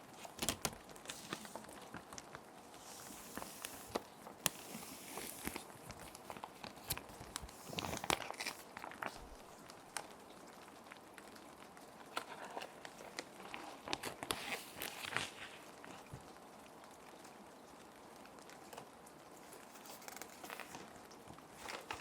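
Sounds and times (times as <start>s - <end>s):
plastic sheet protectors crinkling: 0.0s - 9.4s, 19.6s - 22.0s
soft rain hiss: 0.0s - 22.0s.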